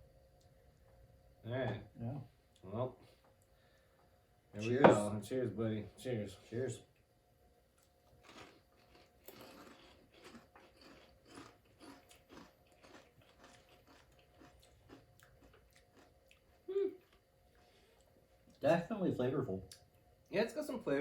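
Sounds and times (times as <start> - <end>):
crunching and chewing: 7.8 - 18.6.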